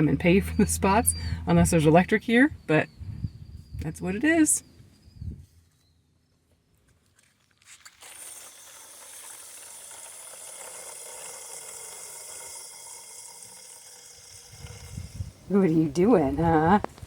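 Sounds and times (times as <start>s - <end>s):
water running from a hose: 7.5s - 15.8s.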